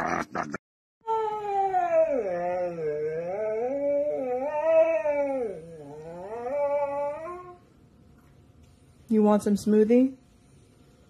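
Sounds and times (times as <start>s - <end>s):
dog howling yowl: 1.0s - 7.6s.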